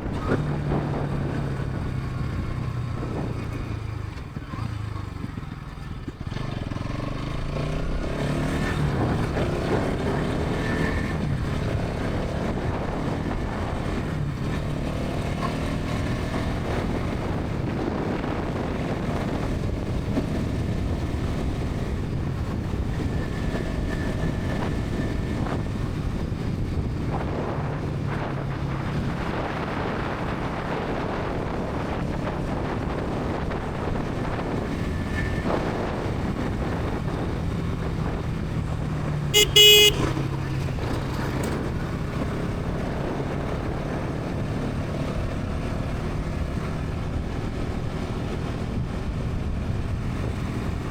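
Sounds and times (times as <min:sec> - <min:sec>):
motorcycle engine and exhaust: 0:00.0 - 0:50.9
wind and road noise: 0:00.0 - 0:50.9.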